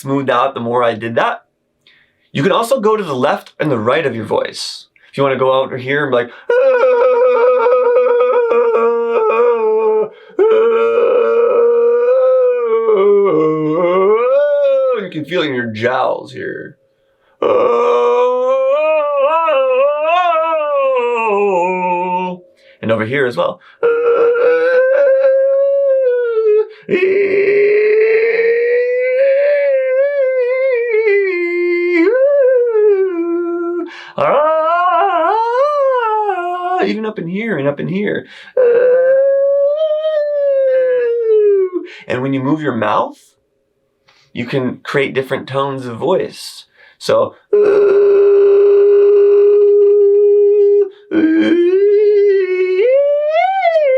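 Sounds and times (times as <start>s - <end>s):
person singing a long tone: 6.5s - 15.0s, 17.4s - 22.4s, 23.8s - 36.8s, 47.5s - 53.9s.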